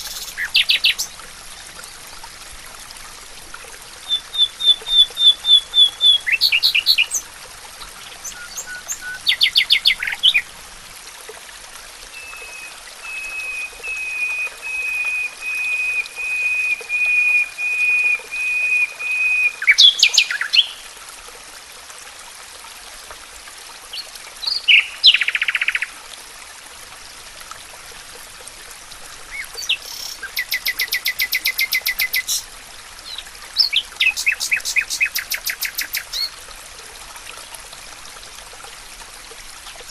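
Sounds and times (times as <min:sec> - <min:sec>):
songbirds singing: 0:00.0 - 0:01.2, 0:04.1 - 0:10.5, 0:19.6 - 0:20.8, 0:29.3 - 0:36.3.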